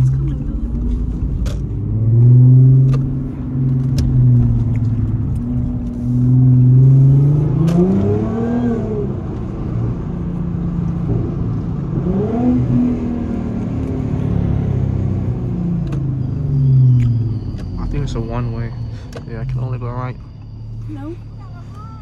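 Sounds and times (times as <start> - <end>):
car engine drone from cabin: 0.0 - 22.0.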